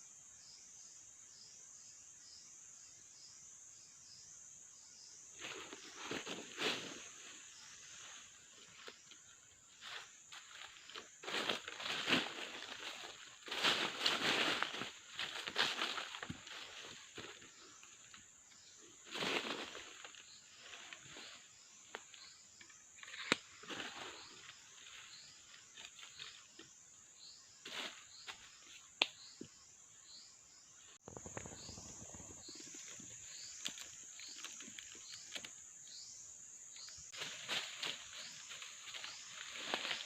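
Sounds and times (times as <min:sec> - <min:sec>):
insects droning: 0:00.0 - 0:40.0
rustles in undergrowth: 0:05.4 - 0:26.8, 0:27.4 - 0:29.4, 0:36.8 - 0:40.0.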